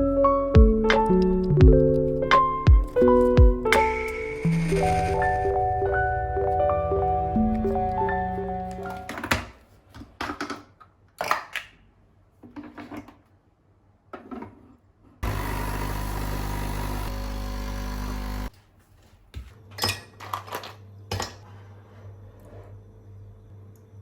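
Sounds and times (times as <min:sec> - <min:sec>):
objects knocking and clattering: 0:08.8 - 0:11.7, 0:12.4 - 0:13.3
loud humming machine: 0:15.2 - 0:18.5.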